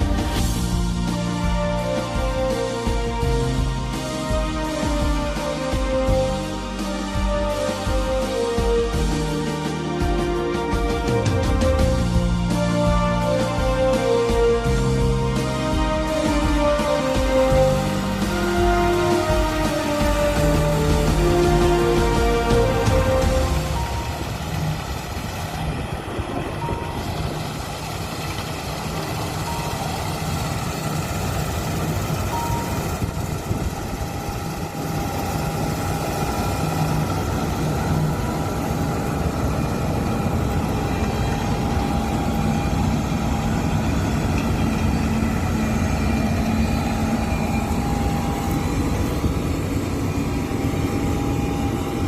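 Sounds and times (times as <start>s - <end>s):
combine harvester droning: 0.0s - 52.0s
thin mechanical whine: 13.9s - 52.0s.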